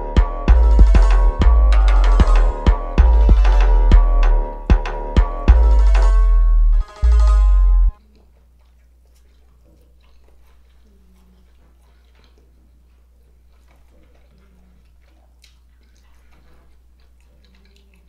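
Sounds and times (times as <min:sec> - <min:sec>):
steady low hum: 0:00.0 - 0:08.0
close-up chewing: 0:08.0 - 0:18.0.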